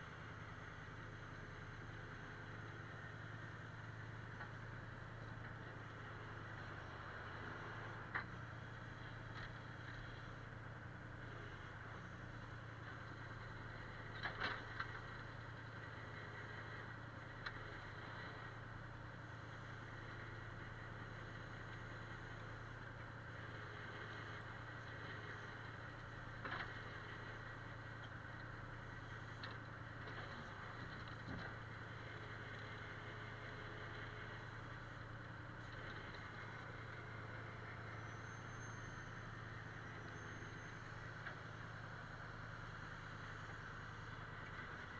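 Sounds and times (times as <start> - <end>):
faint engine running: 0.0 - 44.9.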